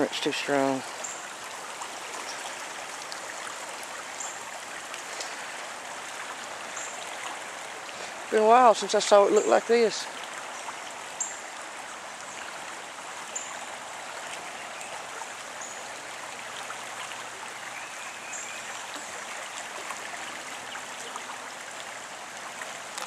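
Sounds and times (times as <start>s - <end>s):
creek water rushing: 0.0s - 23.0s.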